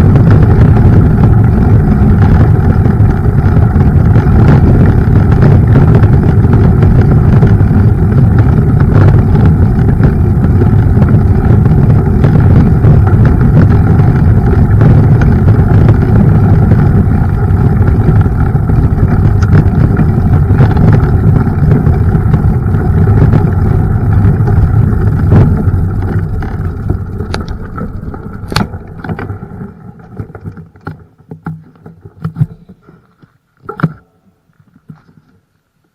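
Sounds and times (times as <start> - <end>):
wind rumble on microphone: 0.0 - 33.0
bike tyres rolling over trail: 0.0 - 35.9.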